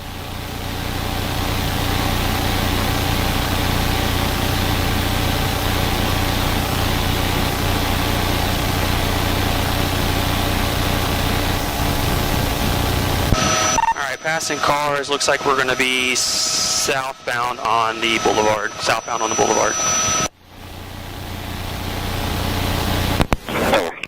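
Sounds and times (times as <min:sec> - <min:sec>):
vehicle engine drone at high speed: 0:00.0 - 0:23.5
rushing noise: 0:10.7 - 0:20.3
brief tone: 0:13.3 - 0:20.3.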